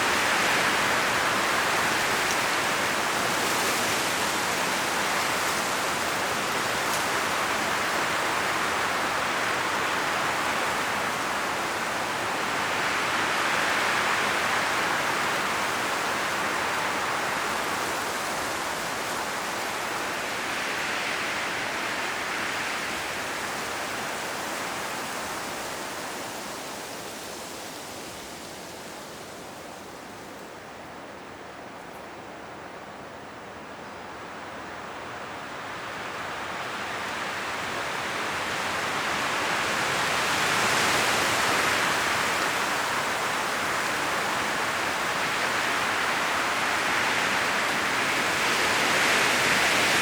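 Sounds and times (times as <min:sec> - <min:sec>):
leaves rustling: 0:00.0 - 0:50.0
wind in trees: 0:00.0 - 0:50.0.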